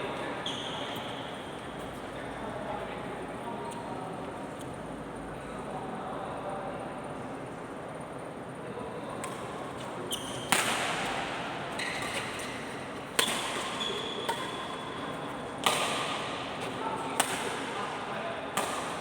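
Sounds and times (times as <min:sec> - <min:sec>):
shoes squeaking on court floor: 0:00.2 - 0:02.0, 0:09.8 - 0:16.8
racket hitting shuttlecock: 0:10.4 - 0:19.0.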